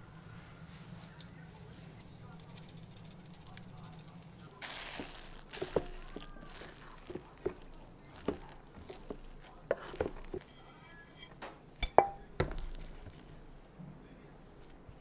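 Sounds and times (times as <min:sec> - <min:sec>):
rice paddle scraping pot: 0:04.6 - 0:13.3.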